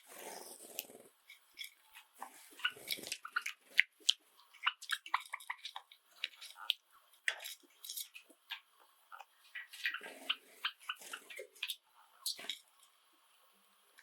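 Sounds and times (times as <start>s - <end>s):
sparrows chirping: 1.3s - 3.8s, 4.5s - 6.7s, 7.4s - 12.6s.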